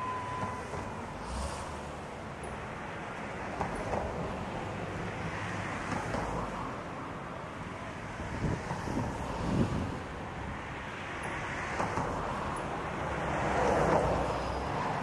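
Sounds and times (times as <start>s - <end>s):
train wheels rumbling on rails: 0.0s - 6.5s
wind on microphone: 8.3s - 10.1s.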